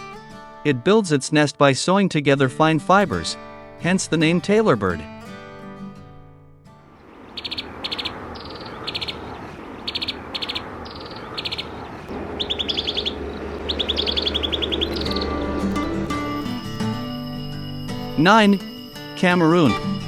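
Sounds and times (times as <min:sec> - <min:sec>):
outdoor ambience hiss: 0:00.0 - 0:20.0
songbird calling: 0:06.9 - 0:20.0
bird trills: 0:07.0 - 0:20.0.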